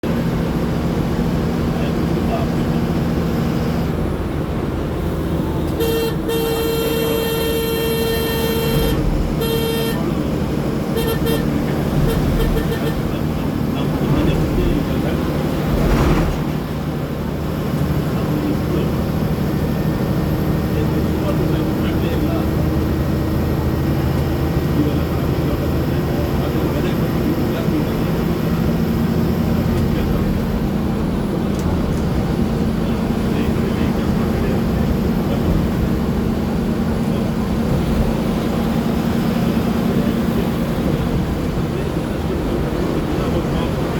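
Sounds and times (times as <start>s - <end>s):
road noise rumble: 0.0s - 43.9s
vehicle horn honking: 5.7s - 13.2s.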